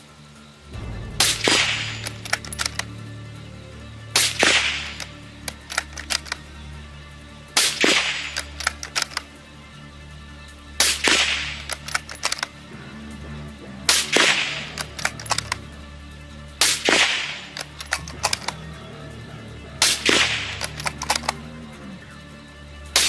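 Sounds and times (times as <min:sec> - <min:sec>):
rifle bolt metallic clicks: 0:01.3 - 0:03.0, 0:04.2 - 0:06.5, 0:07.6 - 0:09.4, 0:10.8 - 0:12.6, 0:13.9 - 0:15.7, 0:16.6 - 0:18.6, 0:19.8 - 0:21.4
suppressed rifle shots: 0:10.8 - 0:12.4, 0:16.6 - 0:18.5, 0:19.8 - 0:21.4.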